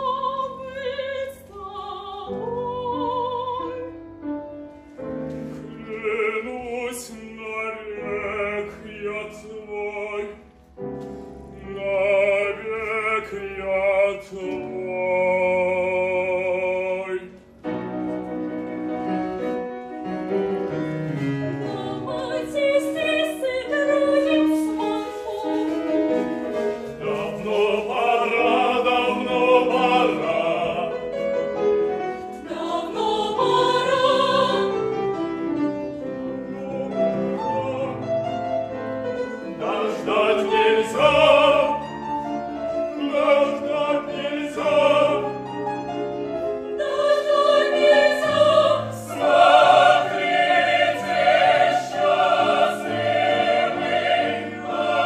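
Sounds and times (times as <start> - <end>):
operatic singing with vibrato: 0.0 - 4.0, 5.7 - 10.4, 11.5 - 17.5, 21.2 - 31.5, 32.2 - 35.1, 36.0 - 38.4, 39.3 - 55.0
instrumental accompaniment: 16.9 - 55.0.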